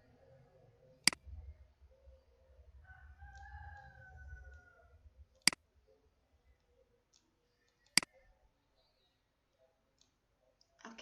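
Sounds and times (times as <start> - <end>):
computer mouse click: 1.0 - 1.2, 7.1 - 8.2.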